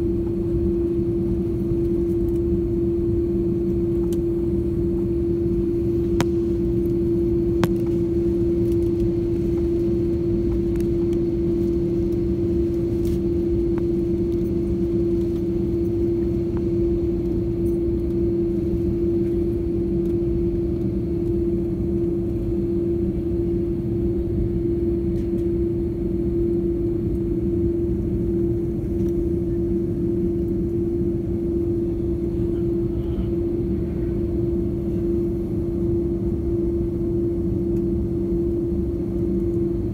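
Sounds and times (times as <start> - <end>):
airliner cabin engine rumble: 0.0 - 39.9
steady hum: 0.0 - 39.9.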